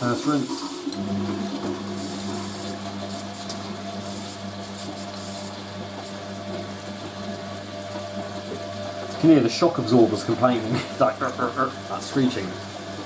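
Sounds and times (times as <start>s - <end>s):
water hissing into drum: 0.0s - 13.0s
water inlet valve hum: 0.0s - 13.0s.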